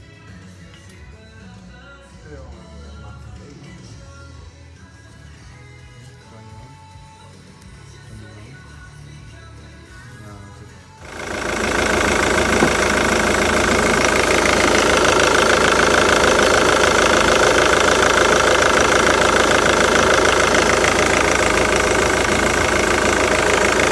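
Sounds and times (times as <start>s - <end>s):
diesel engine idling clatter: 11.0s - 23.9s.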